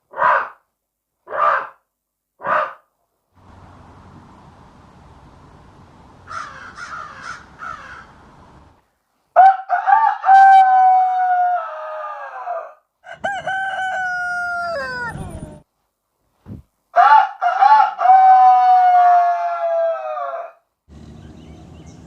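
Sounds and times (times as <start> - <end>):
rooster crowing: 9.4 - 15.6, 17.0 - 20.6.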